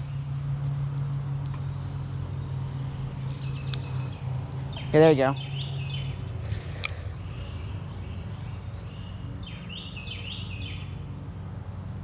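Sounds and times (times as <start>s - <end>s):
songbird singing: 0.0s - 12.0s
steady low hum: 0.0s - 12.0s.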